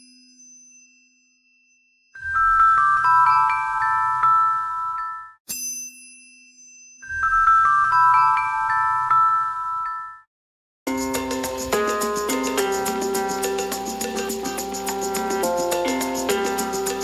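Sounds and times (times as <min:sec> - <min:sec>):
glockenspiel chime jingle: 0:10.9 - 0:17.0.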